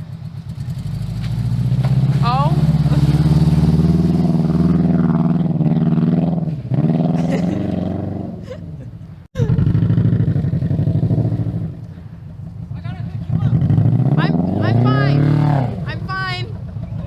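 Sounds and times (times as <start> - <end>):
car engine running hard: 0.0 - 8.5.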